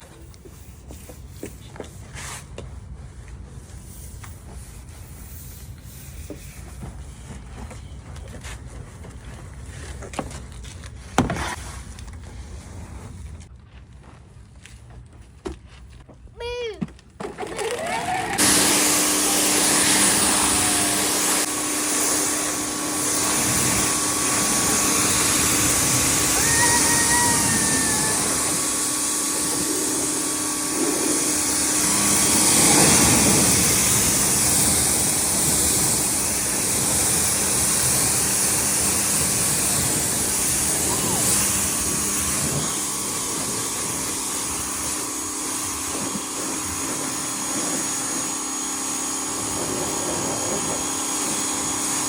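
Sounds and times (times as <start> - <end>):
pressure washer motor humming: 17.4 - 52.0
water spraying hiss: 18.4 - 52.0.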